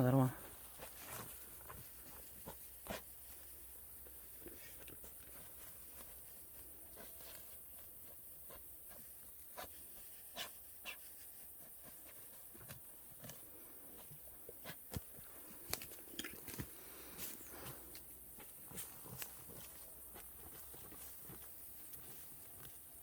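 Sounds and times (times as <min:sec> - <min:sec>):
leaf litter and twigs snapping: 0:14.9 - 0:22.8.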